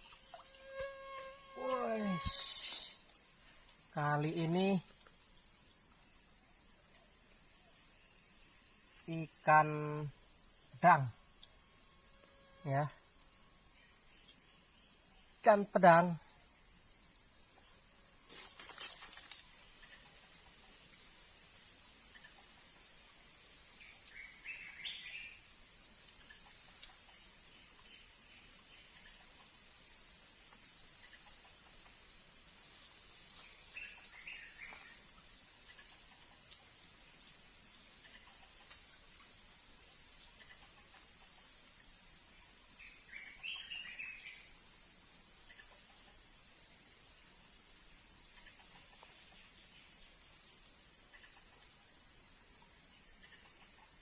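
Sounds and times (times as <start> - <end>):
insects chirring: 0.0 - 54.0
short bird calls: 1.5 - 3.0.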